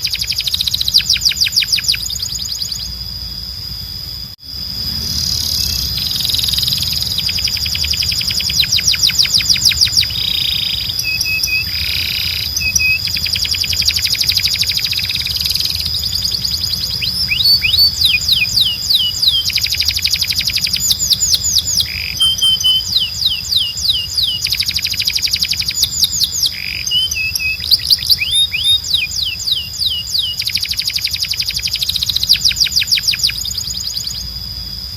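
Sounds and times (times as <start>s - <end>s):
canary singing: 0.0s - 34.6s
low hum: 0.0s - 34.9s
steady high-pitched tone: 0.0s - 34.9s.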